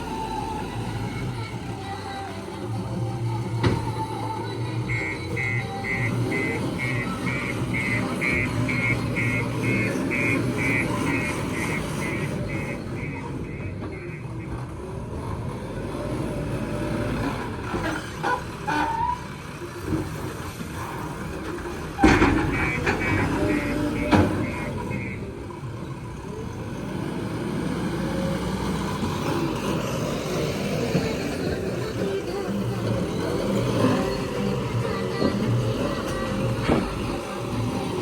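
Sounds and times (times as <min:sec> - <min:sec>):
diesel engines running: 0:00.0 - 0:38.0
high beeps: 0:04.8 - 0:14.6.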